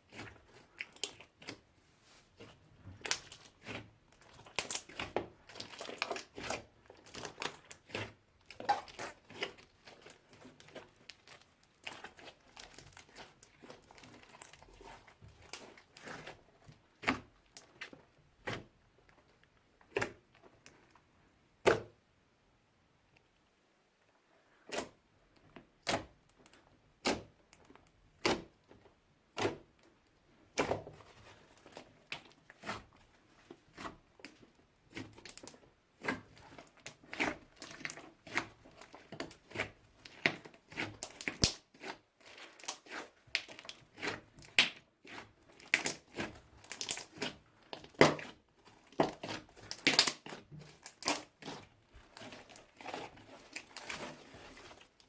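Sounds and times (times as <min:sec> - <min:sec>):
slime popping and crackling: 0:03.0 - 0:15.9, 0:33.7 - 0:44.8, 0:45.6 - 0:54.9.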